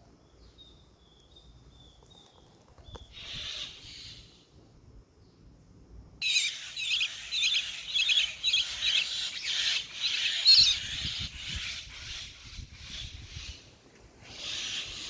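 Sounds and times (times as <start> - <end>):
small bird chirping: 0.2 - 4.3, 6.2 - 13.5.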